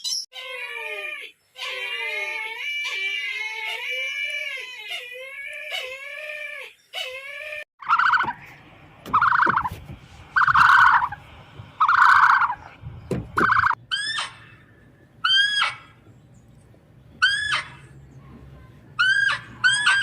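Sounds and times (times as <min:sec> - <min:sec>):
ringing bird calls: 0:07.8 - 0:08.5, 0:09.1 - 0:09.7, 0:10.4 - 0:11.2, 0:13.4 - 0:16.4
rattling bird calls: 0:07.8 - 0:09.8, 0:10.4 - 0:11.2, 0:11.8 - 0:16.1.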